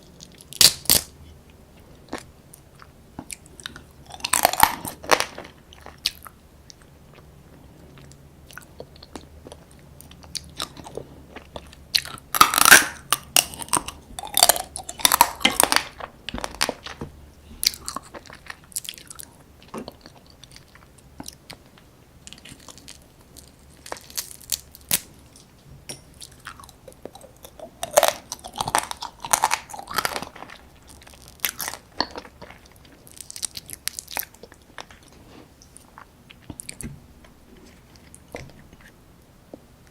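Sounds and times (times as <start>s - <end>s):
crunchy eating and chewing: 0.0s - 39.9s.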